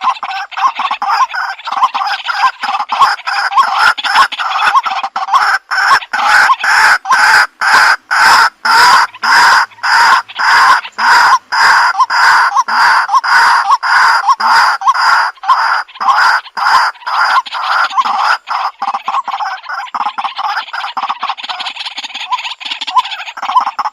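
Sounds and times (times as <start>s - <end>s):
bird harsh repeated calls: 0.0s - 23.9s.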